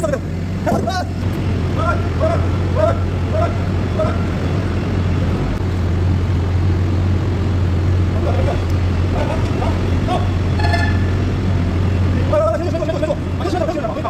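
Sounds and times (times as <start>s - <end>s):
faint voices: 0.0s - 5.6s, 8.2s - 10.6s
heavy equipment engine running: 0.0s - 14.0s.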